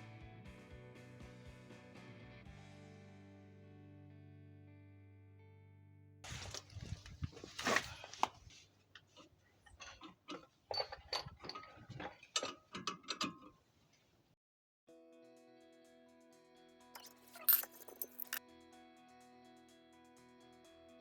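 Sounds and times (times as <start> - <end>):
hand tools clicking and clanking: 6.3 - 14.1, 17.0 - 18.4.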